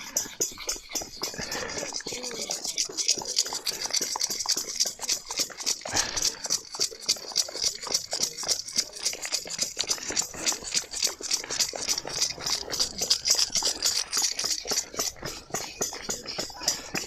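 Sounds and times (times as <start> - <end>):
rapid hand clapping: 7.2 - 17.0.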